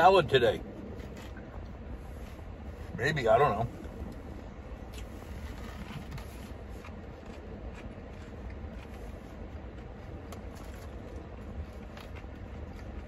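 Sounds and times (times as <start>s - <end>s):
low rumble: 0.0s - 13.0s
person chewing lettuce: 3.8s - 13.0s.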